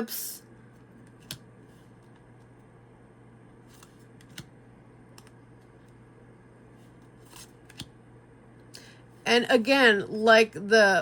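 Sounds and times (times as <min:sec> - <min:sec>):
steady low hum: 0:00.0 - 0:11.0
cards clicking and brushing: 0:00.9 - 0:02.4, 0:03.7 - 0:04.5, 0:06.8 - 0:07.9.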